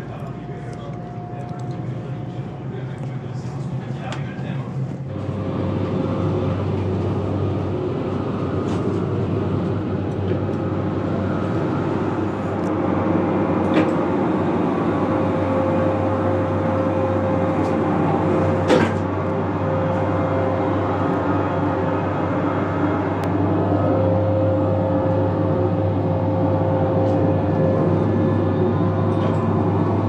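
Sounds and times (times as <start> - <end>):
train rumble and hum: 0.0 - 30.0.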